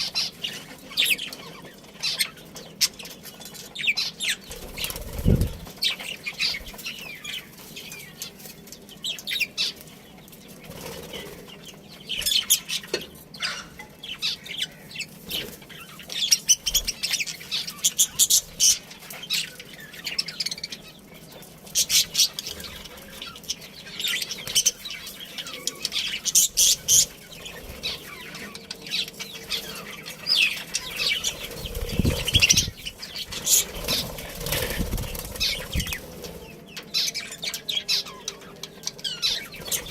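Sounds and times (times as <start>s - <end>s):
wings fluttering: 4.5s - 7.8s, 10.6s - 12.4s, 25.8s - 36.6s
budgerigars chirping: 12.1s - 21.0s.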